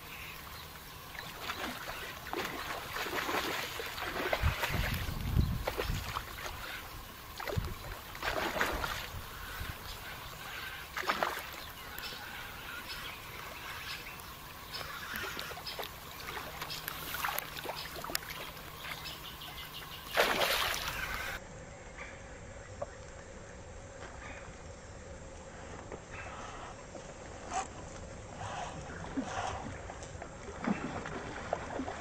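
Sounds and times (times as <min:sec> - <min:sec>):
rain pattering on a pond: 0:00.0 - 0:19.2
water splashes: 0:00.0 - 0:21.4, 0:28.8 - 0:32.0.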